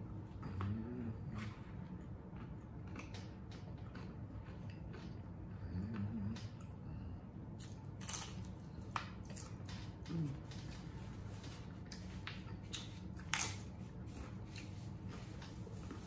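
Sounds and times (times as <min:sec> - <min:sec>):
wet chewing: 0:00.3 - 0:06.7
chips crunching between teeth: 0:07.6 - 0:09.8, 0:11.9 - 0:13.7.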